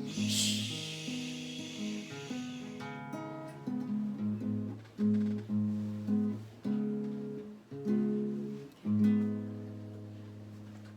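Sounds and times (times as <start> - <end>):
acoustic guitar strumming chords: 0.0 - 7.4.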